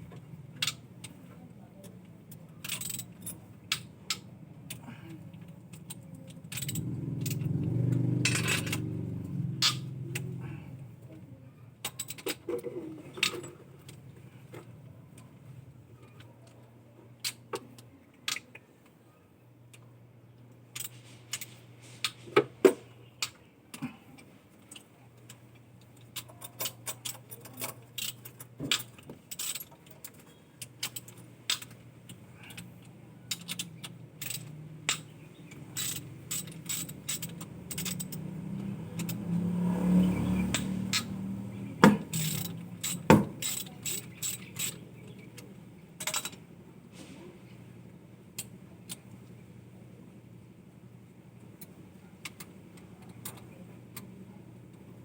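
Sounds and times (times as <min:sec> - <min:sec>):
hand tools clinking on metal: 0:33.3 - 0:39.5, 0:40.4 - 0:45.2.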